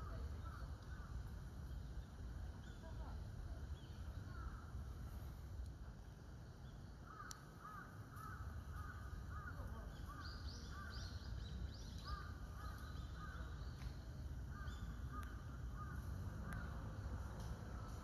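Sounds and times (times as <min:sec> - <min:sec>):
birds calling: 0:06.7 - 0:18.0.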